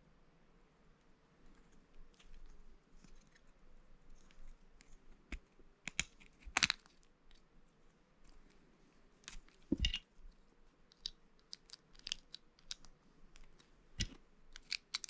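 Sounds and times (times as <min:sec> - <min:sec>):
plastic bricks clicking together: 0:10.9 - 0:12.9, 0:14.0 - 0:15.0.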